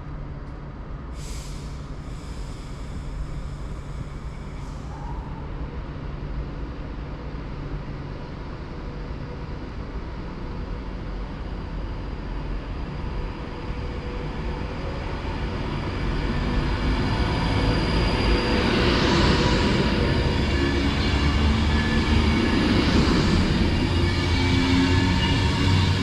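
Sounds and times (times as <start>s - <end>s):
electric train hum: 0.0s - 26.0s.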